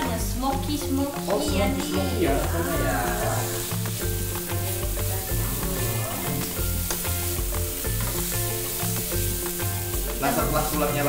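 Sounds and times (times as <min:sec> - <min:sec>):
mushrooms sizzling in hot oil: 0:00.0 - 0:11.0
spatula scraping and tapping pan: 0:03.6 - 0:10.3.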